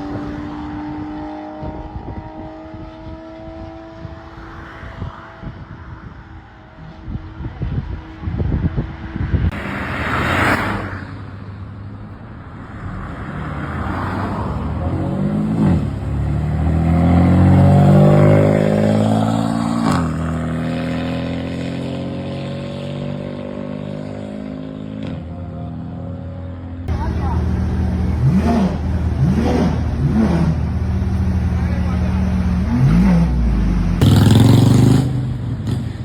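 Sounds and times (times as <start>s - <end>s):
sports car engine accelerating: 12.8s - 25.3s, 26.6s - 36.0s.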